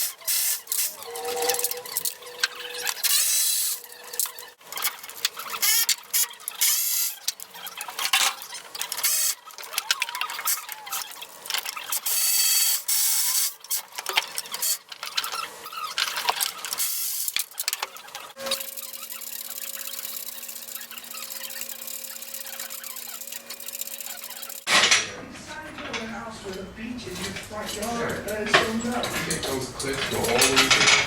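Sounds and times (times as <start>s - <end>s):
ratchet clicking: 0.0s - 24.7s
tools rasping and scraping metal: 0.0s - 26.2s, 27.1s - 31.0s.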